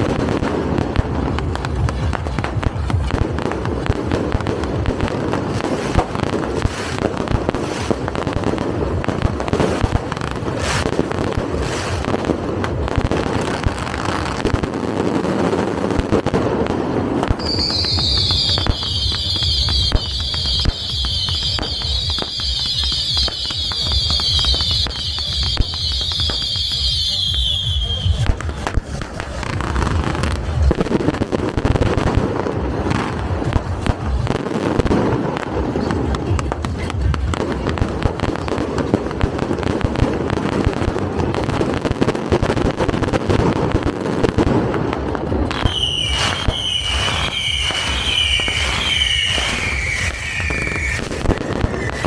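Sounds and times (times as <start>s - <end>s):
firecrackers crackling: 0.0s - 52.0s
shrill wavering whistle: 45.6s - 52.0s.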